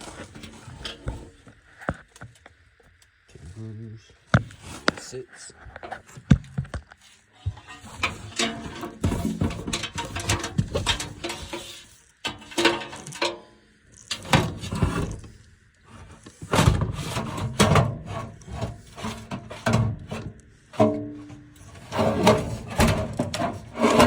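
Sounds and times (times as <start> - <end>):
metal assembly scraping and knocking: 7.4 - 13.4, 14.0 - 15.3, 16.0 - 24.0.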